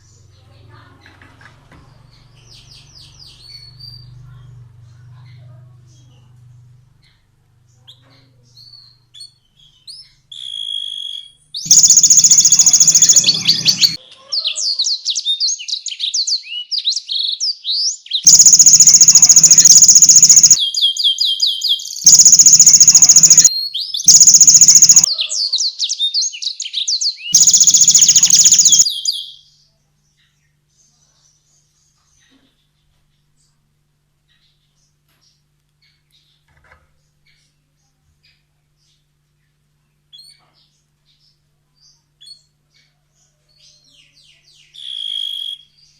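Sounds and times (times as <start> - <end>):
canary singing trills: 8.6 - 15.6, 18.0 - 29.4.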